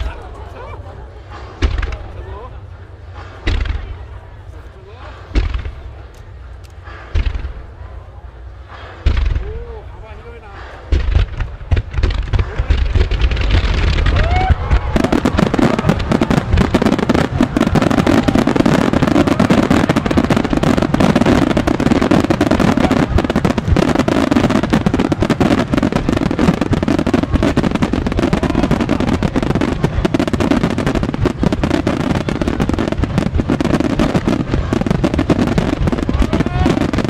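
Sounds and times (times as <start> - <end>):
fireworks bangs and crackles: 0.0 - 37.0.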